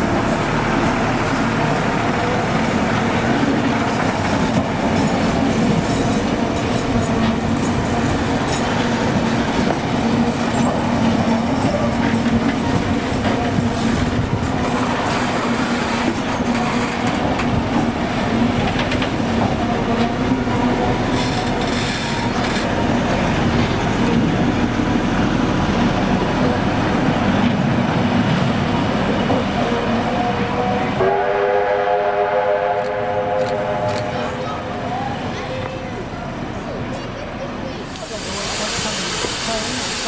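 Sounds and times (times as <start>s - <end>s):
train rumble and clickety-clack: 0.0s - 40.0s
multi-note train signal: 29.4s - 35.6s.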